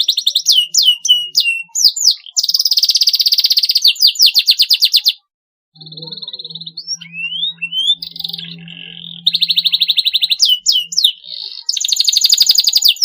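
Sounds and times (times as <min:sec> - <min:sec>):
canary singing trills: 0:00.0 - 0:13.0
faint low hum: 0:05.8 - 0:11.5.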